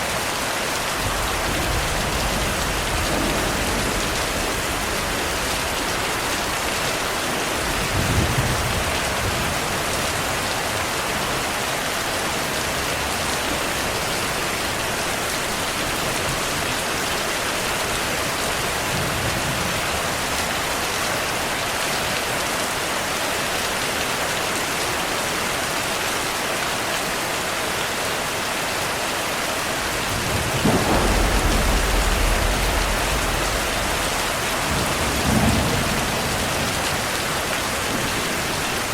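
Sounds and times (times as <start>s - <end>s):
heavy rain: 0.0s - 38.9s
thunder rumbling: 0.9s - 10.0s, 29.8s - 38.9s.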